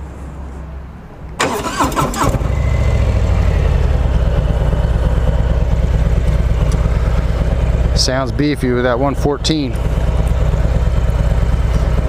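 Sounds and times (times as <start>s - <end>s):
motorcycle engine starting: 1.4s - 12.0s
motorcycle engine idling: 2.4s - 12.0s.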